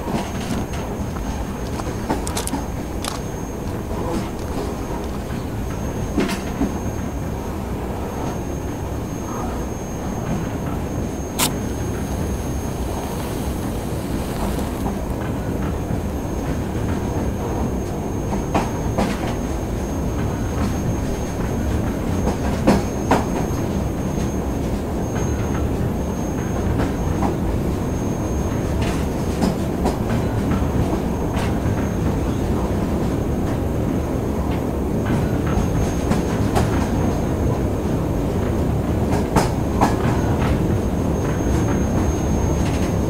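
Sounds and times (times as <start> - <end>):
thin steady high whine: 0.0 - 21.2
rail car rumbling: 0.0 - 43.0.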